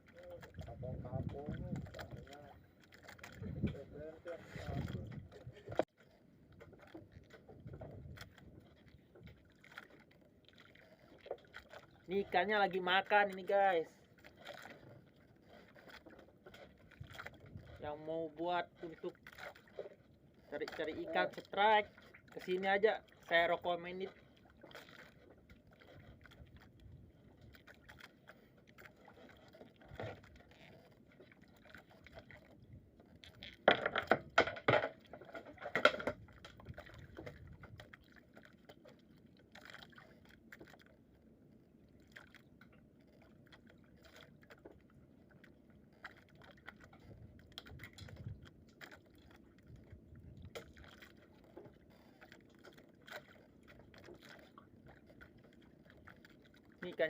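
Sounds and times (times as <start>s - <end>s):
water lapping: 0.0s - 57.0s
loud splashes and knocks: 33.5s - 37.8s.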